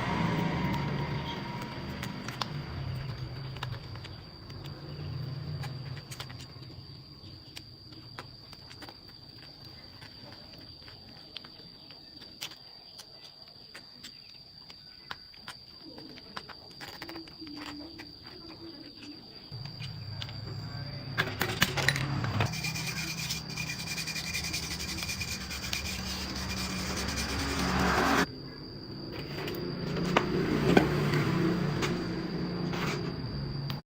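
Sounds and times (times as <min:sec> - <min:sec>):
high-pitched insect-like trill: 0:13.9 - 0:30.0
motor humming: 0:19.6 - 0:28.3.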